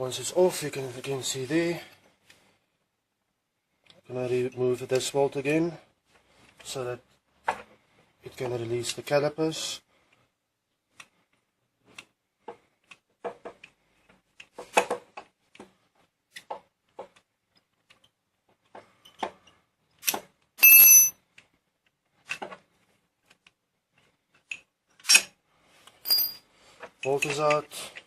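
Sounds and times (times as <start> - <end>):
ringing metal clink: 20.6 - 21.2, 26.1 - 26.4.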